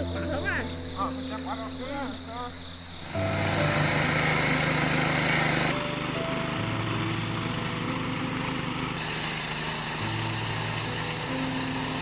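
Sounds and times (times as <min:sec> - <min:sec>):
small engine running: 0:02.9 - 0:12.0.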